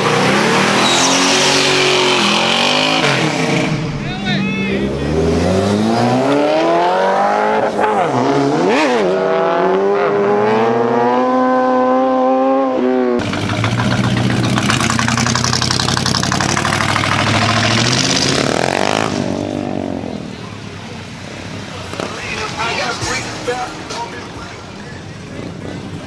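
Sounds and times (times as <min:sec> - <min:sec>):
car engine revving: 0:00.0 - 0:26.0
engine running with rough rasp: 0:13.2 - 0:18.0.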